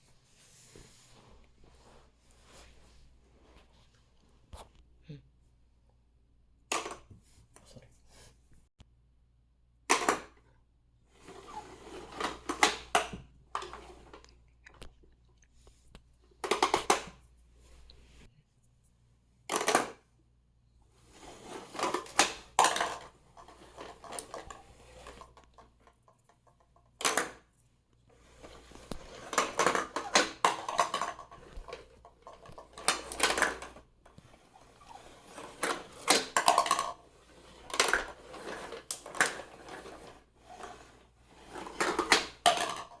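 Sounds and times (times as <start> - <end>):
plastic toy clicking and clattering: 21.8 - 27.4, 28.8 - 34.2, 34.9 - 40.7, 41.5 - 43.0.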